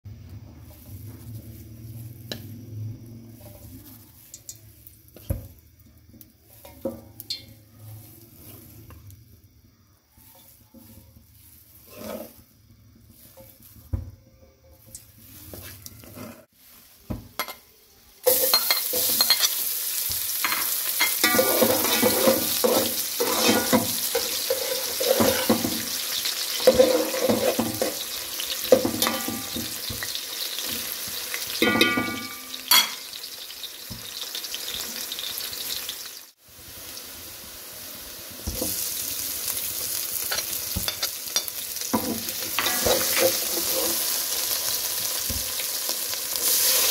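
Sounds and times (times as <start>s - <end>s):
food sizzling in hot oil: 0.4s - 14.1s, 14.7s - 46.9s
utensil stirring in pot: 10.2s - 13.9s, 18.2s - 30.8s, 38.5s - 45.6s.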